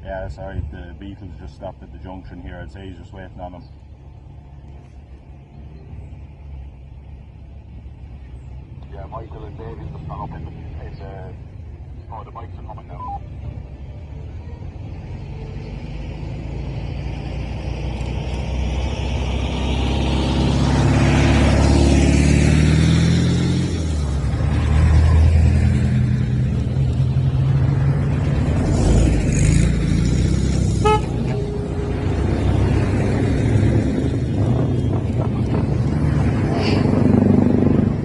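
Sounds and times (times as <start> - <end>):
motorbikes riding past: 13.0 - 38.0
horn toot: 30.6 - 32.5.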